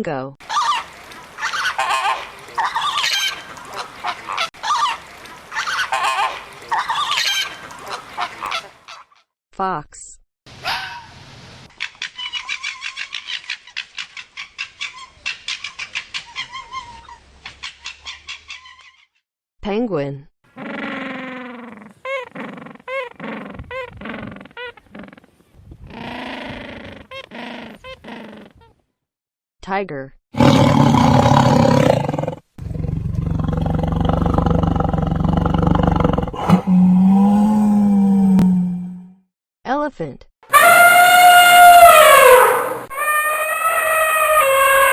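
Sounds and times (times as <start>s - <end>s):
tiger growling: 30.4s - 39.1s
tiger roaring: 30.4s - 39.1s
drawn-out tiger call: 40.5s - 44.9s
fox chattering cries: 40.5s - 44.9s.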